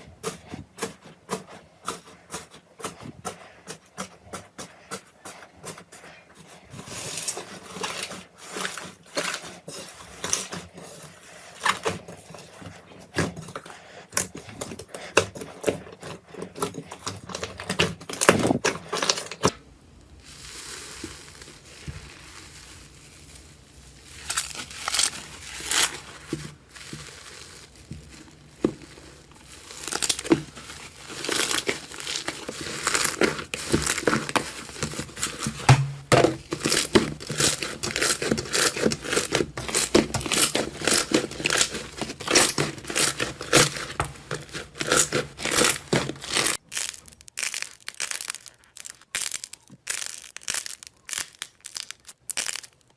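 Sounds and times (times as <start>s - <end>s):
slime squishing and popping: 26.7s - 52.9s.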